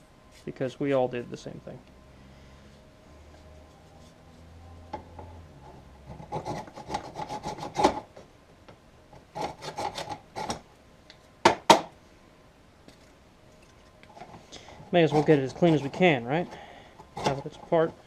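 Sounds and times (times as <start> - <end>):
screwdriver scraping dirt: 14.9 - 16.0, 17.1 - 17.9.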